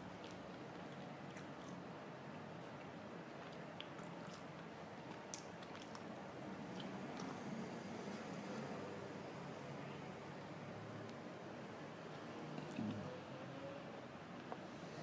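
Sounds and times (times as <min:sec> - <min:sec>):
person chewing: 0:02.7 - 0:06.2.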